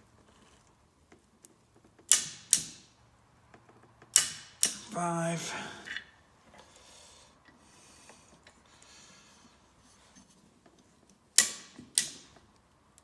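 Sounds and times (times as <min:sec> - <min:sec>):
torque wrench clicking: 0:04.1 - 0:04.9.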